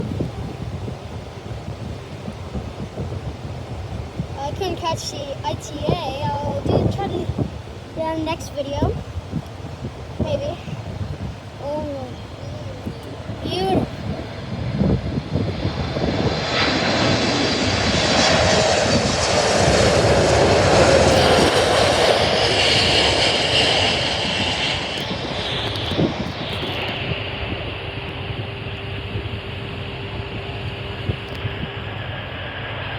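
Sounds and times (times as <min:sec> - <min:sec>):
jet airliner landing: 0:00.0 - 0:32.9.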